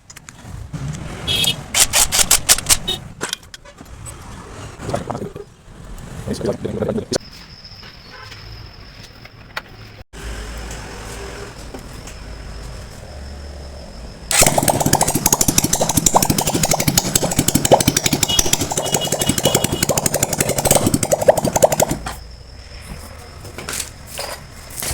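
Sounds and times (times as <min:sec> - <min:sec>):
motorcycle engine running: 0:14.3 - 0:22.1.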